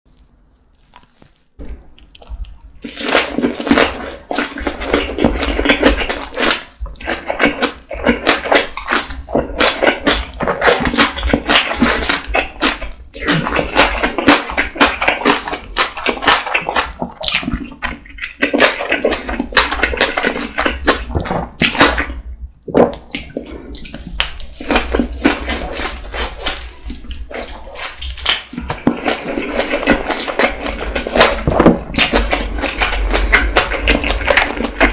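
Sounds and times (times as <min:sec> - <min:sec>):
person biting and chewing food: 0:00.2 - 0:34.9.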